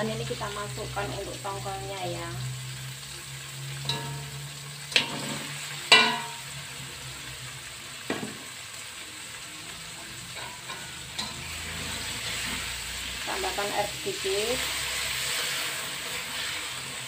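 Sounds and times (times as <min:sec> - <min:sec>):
food sizzling in a wok: 0:00.0 - 0:17.0
metal utensils clanking on wok: 0:03.8 - 0:06.6, 0:10.3 - 0:12.6.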